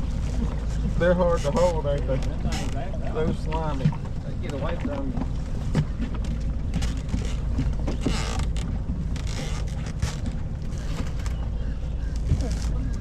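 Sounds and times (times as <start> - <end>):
wind rumble on microphone: 0.0 - 13.0
short rustling noises: 5.6 - 13.0.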